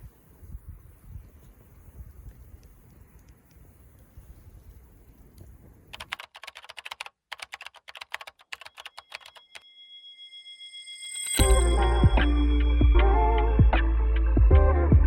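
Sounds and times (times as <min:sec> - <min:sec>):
computer keyboard typing: 0:05.9 - 0:09.6
high tone: 0:08.8 - 0:13.8
music: 0:11.4 - 0:15.0.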